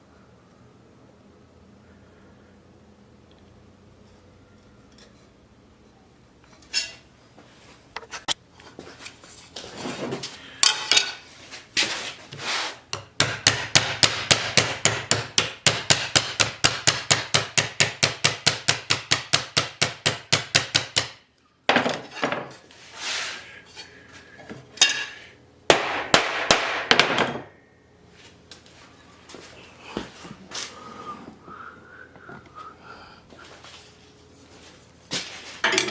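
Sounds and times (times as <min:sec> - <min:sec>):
hammer striking metal: 0:24.8 - 0:27.5.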